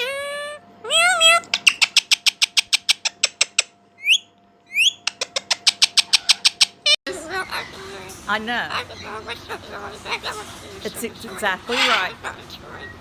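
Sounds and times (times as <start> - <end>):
parrot call: 0.0 - 10.6, 11.6 - 13.0
parrot chirping rapidly: 0.0 - 10.7, 11.3 - 13.0
parrot rising whistles: 4.0 - 5.0.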